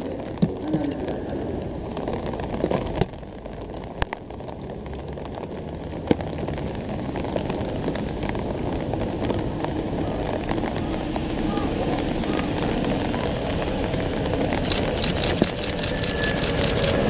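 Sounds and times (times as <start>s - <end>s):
electric train rumbling: 6.4s - 17.0s
sharp clicks: 14.6s - 17.0s.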